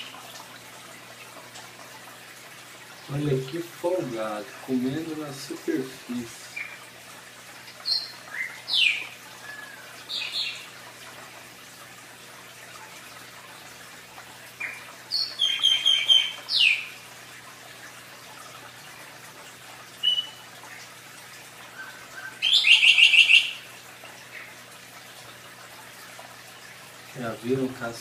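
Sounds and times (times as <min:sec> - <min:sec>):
aquarium filter water splashing: 0:00.0 - 0:28.0
bird chirping: 0:07.8 - 0:10.7, 0:14.6 - 0:16.9, 0:21.8 - 0:23.6.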